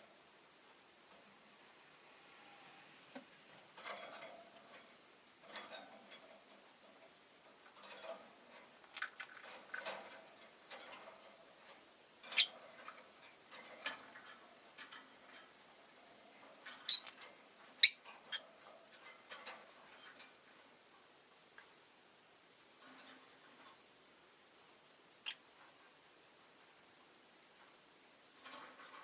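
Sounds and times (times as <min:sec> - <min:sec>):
lovebirds chirping and clicking: 0:12.2 - 0:13.0, 0:16.6 - 0:20.2, 0:25.2 - 0:25.7
loud sharp bird chirps: 0:16.9 - 0:17.1.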